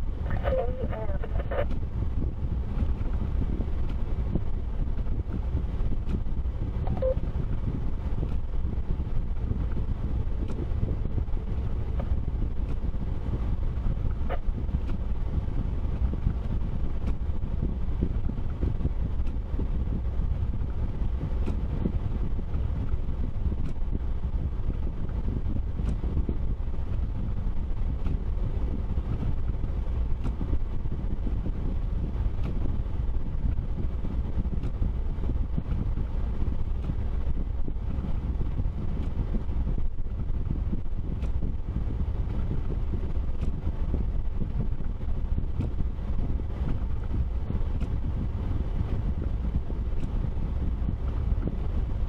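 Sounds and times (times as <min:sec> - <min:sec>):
vehicle engine and road rumble: 0:00.0 - 0:52.0.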